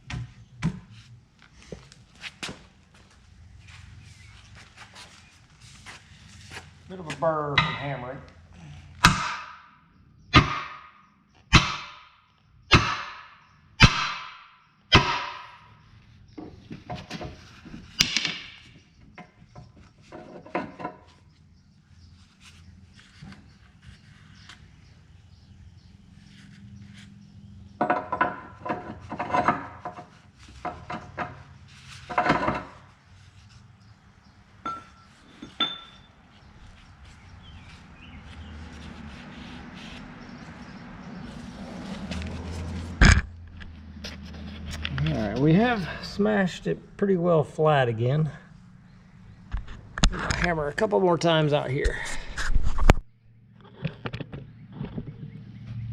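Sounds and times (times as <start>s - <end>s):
hammer striking steel: 9.0s - 9.7s, 10.3s - 15.7s.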